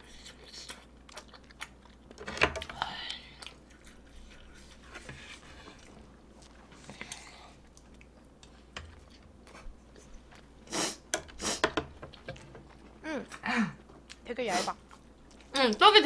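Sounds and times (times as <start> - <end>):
close-up chewing: 0.0 - 10.6.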